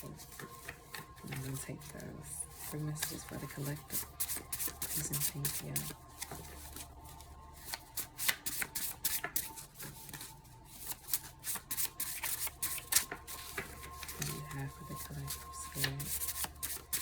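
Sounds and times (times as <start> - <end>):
cards being shuffled: 2.6 - 17.0.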